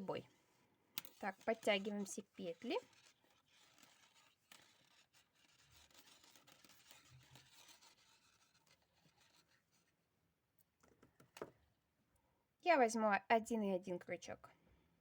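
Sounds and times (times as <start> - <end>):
yarn rustling on knitting needles: 0.0 - 10.0.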